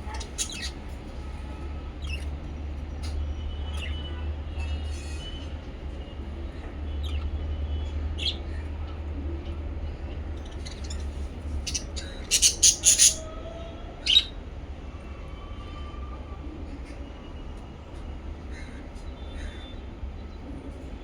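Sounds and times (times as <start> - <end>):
parrots chirping and squawking: 0.0 - 1.0, 2.0 - 2.3, 10.4 - 13.3, 14.0 - 14.3.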